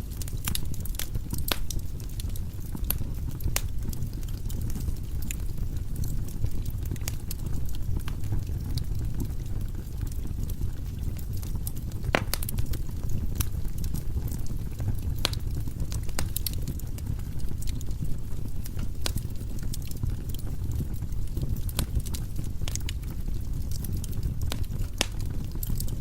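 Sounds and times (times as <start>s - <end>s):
firewood crackling and popping: 0.0s - 26.0s.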